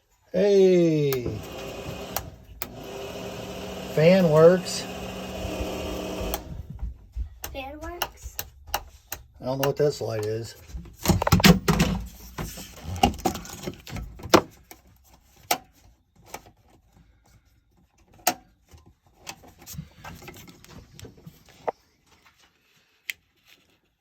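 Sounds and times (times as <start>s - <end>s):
rustling handling noise: 10.3s - 24.0s.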